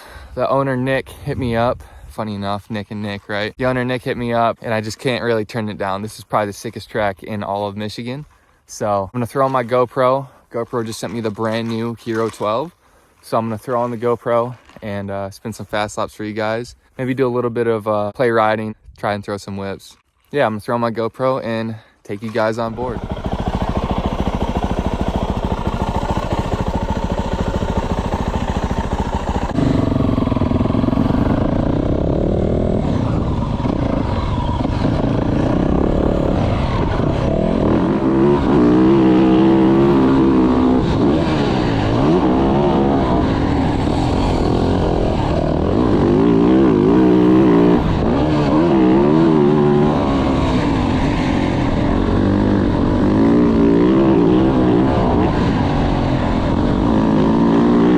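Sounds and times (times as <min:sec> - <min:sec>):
motorcycle engine revving: 0:22.5 - 0:57.9.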